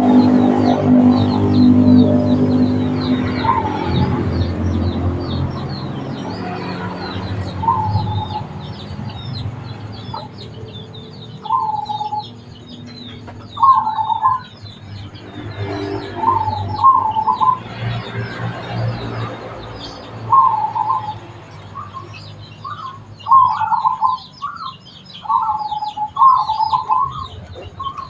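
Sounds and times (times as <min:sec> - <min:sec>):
dove cooing: 0:00.0 - 0:04.5, 0:06.5 - 0:08.6, 0:11.4 - 0:12.3, 0:13.5 - 0:14.5, 0:16.2 - 0:17.6, 0:20.3 - 0:21.2, 0:22.7 - 0:28.0
low drone: 0:00.0 - 0:10.8
small birds chirping: 0:00.0 - 0:28.0.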